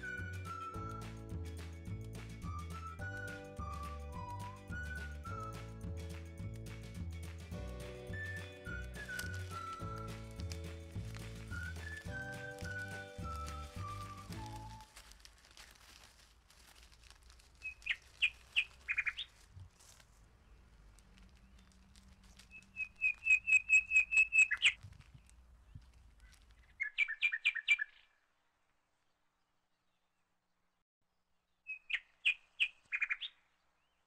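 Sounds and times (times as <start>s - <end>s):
bird chirping: 7.8s - 14.9s, 17.6s - 19.4s, 20.4s - 28.3s, 31.5s - 34.0s.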